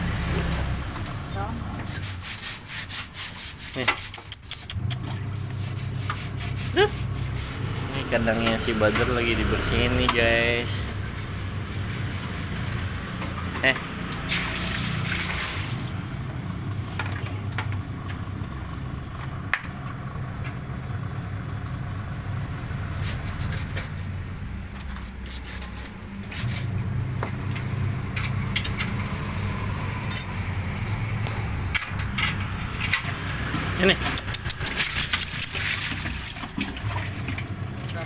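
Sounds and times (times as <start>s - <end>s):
cage cleaning scrapes and clicks: 1.8s - 15.9s, 22.9s - 24.2s, 24.8s - 26.8s, 30.7s - 38.0s.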